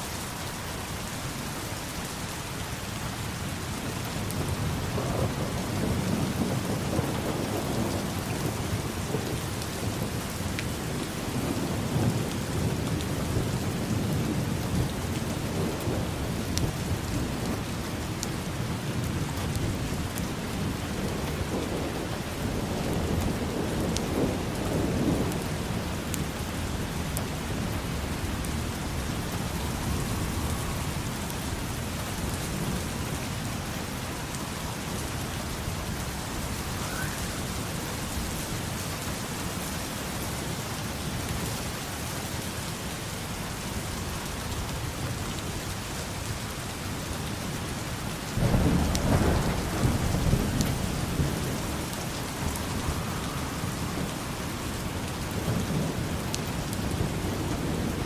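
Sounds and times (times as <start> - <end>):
rain on hard surfaces: 0.0 - 58.0
low rolling thunder: 3.8 - 39.6, 47.9 - 58.0.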